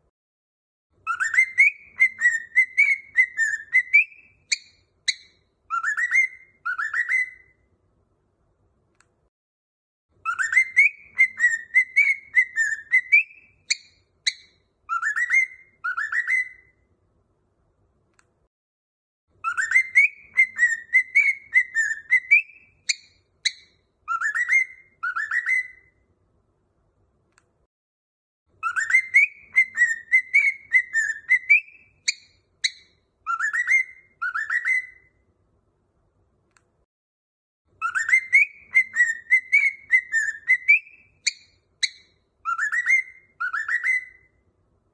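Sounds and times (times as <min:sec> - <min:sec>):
cockatiel chirps: 0:01.0 - 0:07.6, 0:10.2 - 0:16.8, 0:19.4 - 0:26.0, 0:28.6 - 0:35.2, 0:37.7 - 0:44.4
cockatiel whistling: 0:01.0 - 0:07.6, 0:10.2 - 0:16.8, 0:19.4 - 0:26.0, 0:28.6 - 0:35.2, 0:37.8 - 0:44.4.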